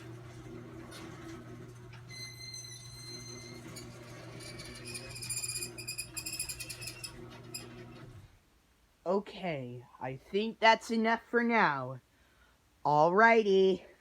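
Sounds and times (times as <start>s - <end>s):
garage door opener motor hum: 0.0s - 8.3s
rapid high squeaking: 2.1s - 8.2s.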